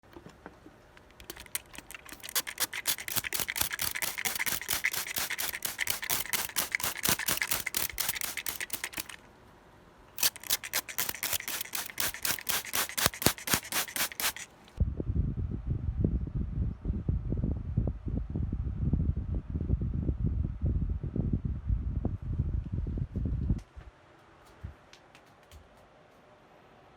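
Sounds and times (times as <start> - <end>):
rapid scratchy strokes: 1.2 - 9.2, 10.2 - 14.5.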